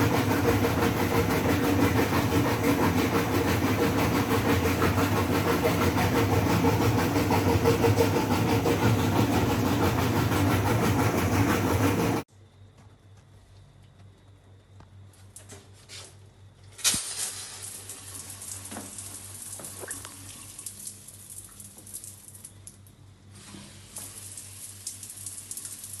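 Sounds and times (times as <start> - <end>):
water running from tap: 17.2 - 22.7, 23.7 - 26.0.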